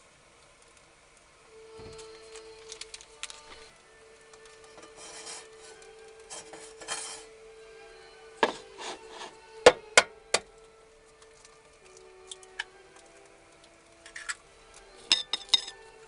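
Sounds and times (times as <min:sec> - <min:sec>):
faint steady hum: 0:00.0 - 0:16.0
rubbing and scraping of handling: 0:04.5 - 0:07.4, 0:08.4 - 0:09.6.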